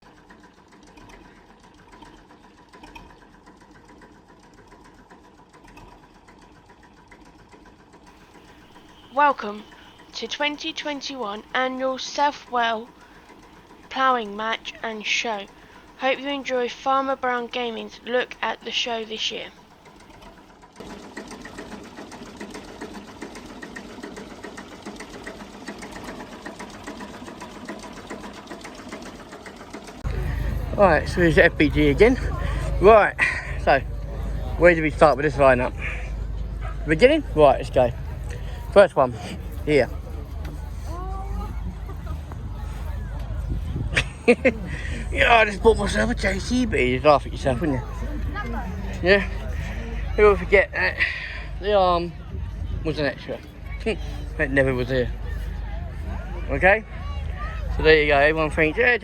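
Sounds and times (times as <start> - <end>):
machine mechanical clatter: 0.0 - 11.6, 19.5 - 32.2
small engine running with clatter: 0.0 - 59.0.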